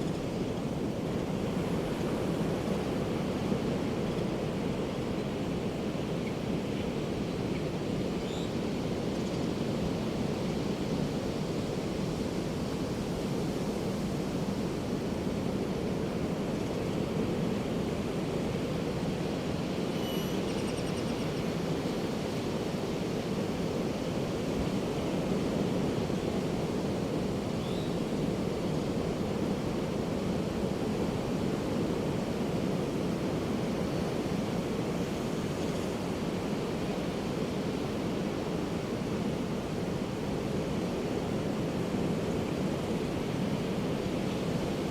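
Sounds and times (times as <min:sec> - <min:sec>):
faint short high call: 0:20.0 - 0:20.5.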